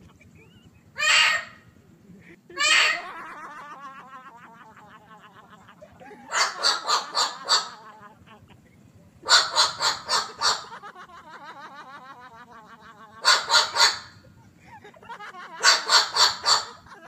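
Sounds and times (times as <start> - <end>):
parrot squawking: 1.0 - 1.7, 2.5 - 3.2, 6.3 - 8.0, 9.2 - 10.8, 13.2 - 14.2, 15.6 - 16.9.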